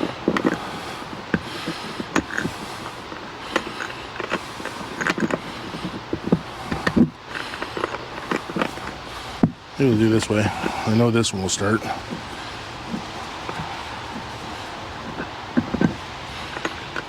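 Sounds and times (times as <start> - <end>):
bolt clicking and creaking: 0.0 - 10.7.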